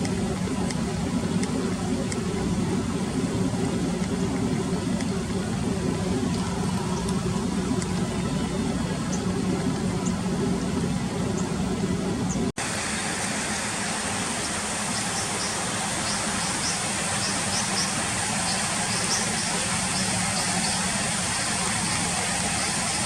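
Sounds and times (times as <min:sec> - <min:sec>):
river water rushing: 0:12.6 - 0:23.0.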